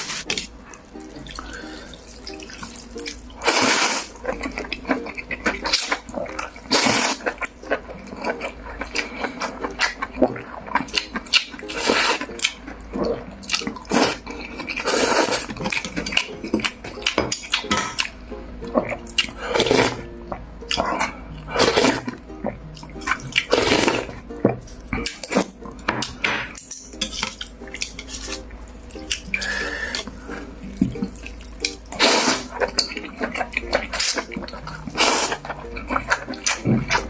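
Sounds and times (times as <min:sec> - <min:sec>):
slurping and chewing noodles: 0:00.0 - 0:26.3, 0:27.1 - 0:37.0
utensils clinking on bowl: 0:04.2 - 0:18.2, 0:22.8 - 0:37.0.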